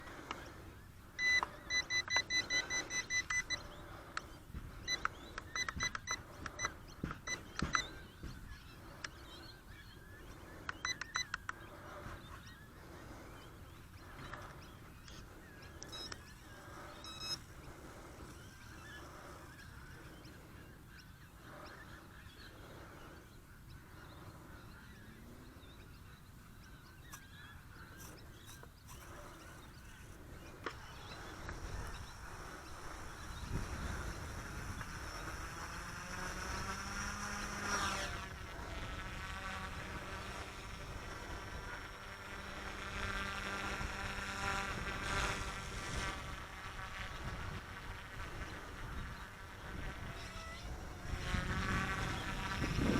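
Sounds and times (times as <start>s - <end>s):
short electronic beeps: 1.2s - 3.8s, 4.9s - 8.0s, 15.9s - 16.2s, 17.0s - 17.4s.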